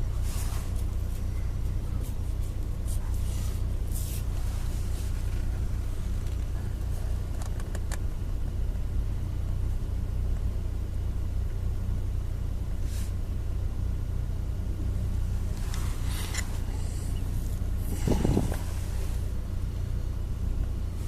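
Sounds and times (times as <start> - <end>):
engine and tyres rumble: 0.0 - 21.0
short hiss: 12.8 - 13.2.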